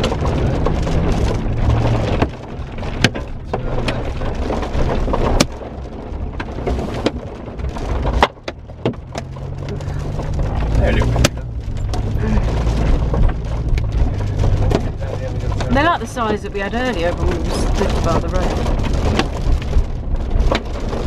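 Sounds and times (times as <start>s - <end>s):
heavy rain drumming on vehicle: 0.0s - 21.0s.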